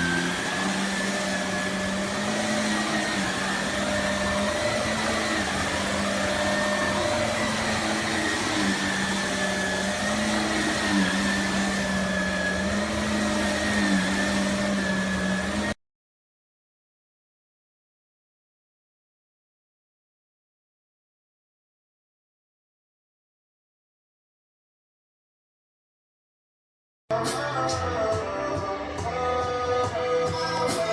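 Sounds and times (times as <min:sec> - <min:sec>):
vacuum cleaner motor running: 0:00.0 - 0:15.8.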